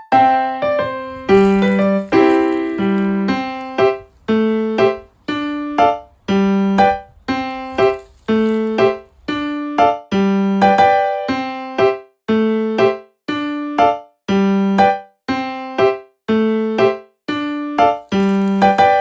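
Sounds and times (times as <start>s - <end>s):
light electric piano tune: 0.7s - 11.5s, 17.8s - 19.0s.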